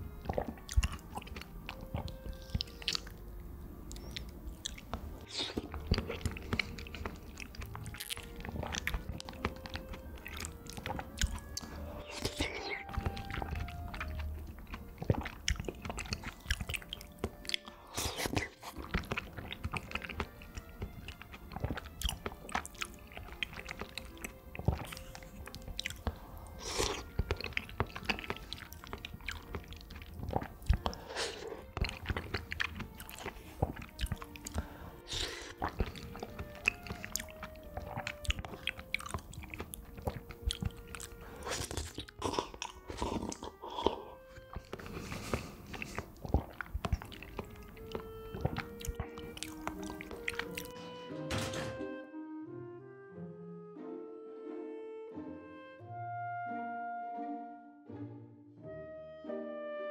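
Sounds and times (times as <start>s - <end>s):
wet chewing and smacking: 0.0s - 50.9s.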